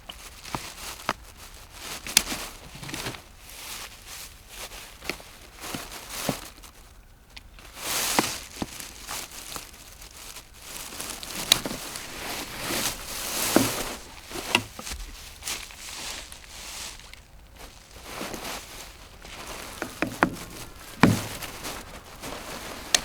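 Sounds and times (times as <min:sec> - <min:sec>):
rustling and crinkling handling noise: 0:00.0 - 0:23.0
small knocks and clicks: 0:11.0 - 0:15.2, 0:19.2 - 0:23.0.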